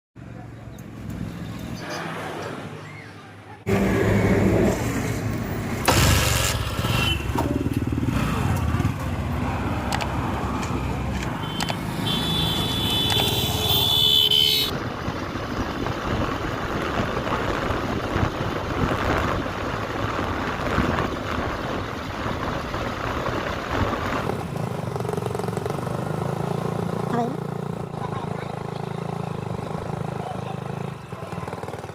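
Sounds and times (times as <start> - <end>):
diesel engines running: 3.6 - 31.9
high steady horn-like tone: 11.4 - 14.7.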